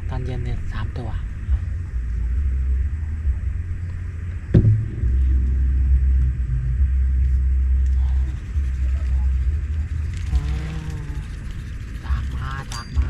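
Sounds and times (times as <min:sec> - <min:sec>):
low rumble: 0:00.0 - 0:13.0
sharp knock: 0:04.6 - 0:06.6.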